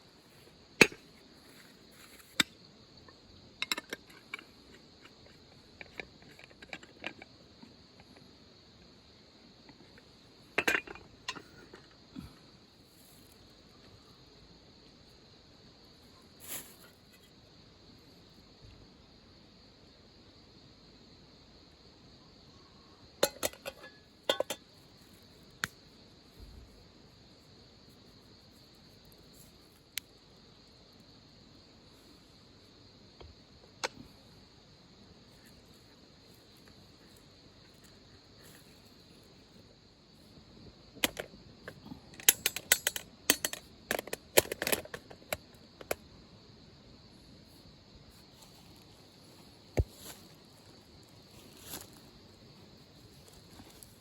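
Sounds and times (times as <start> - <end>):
insects droning: 0.0 - 54.0
cups clinking: 23.2 - 24.6.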